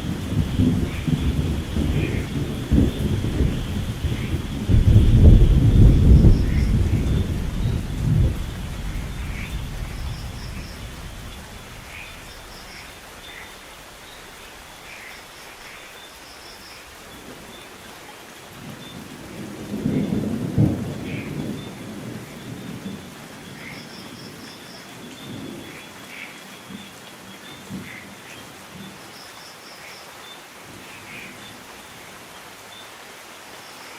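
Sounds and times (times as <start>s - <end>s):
thunder rumbling: 0.0s - 13.2s, 19.2s - 23.1s
steady rain: 0.0s - 33.9s.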